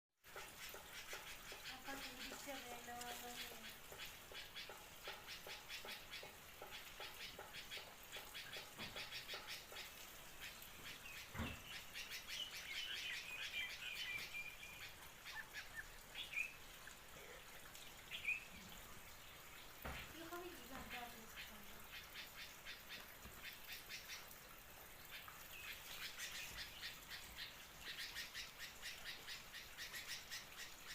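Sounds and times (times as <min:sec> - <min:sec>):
small birds chirping: 0:00.2 - 0:30.9
bird warbling call: 0:00.3 - 0:16.6.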